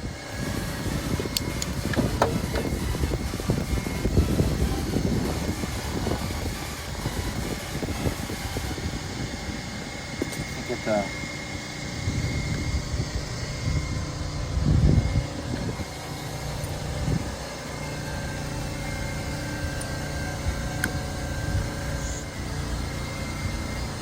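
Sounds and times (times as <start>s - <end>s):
low bumps: 0.0s - 10.7s
low mechanical hum: 0.0s - 24.0s.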